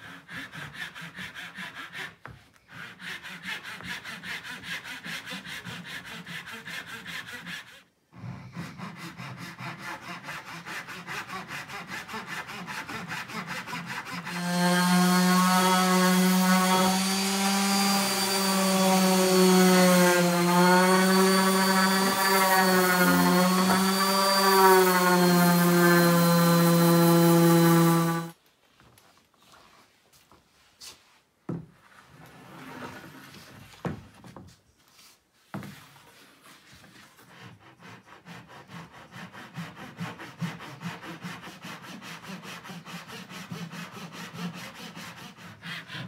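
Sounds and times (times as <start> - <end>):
handsaw cutting wood: 0.0 - 28.4, 36.8 - 46.0
orbital sander humming: 14.4 - 28.3.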